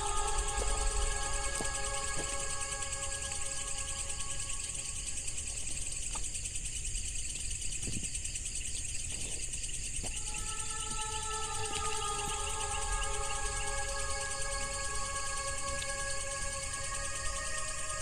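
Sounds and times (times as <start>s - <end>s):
steady low tones: 0.0s - 6.0s
crickets trilling: 0.0s - 18.0s.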